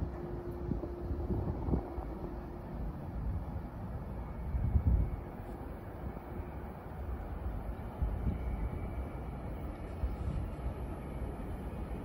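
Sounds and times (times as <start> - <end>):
wind on microphone: 0.0 - 2.4
distant train rumble: 0.0 - 12.0
faint steady tone: 0.0 - 12.0.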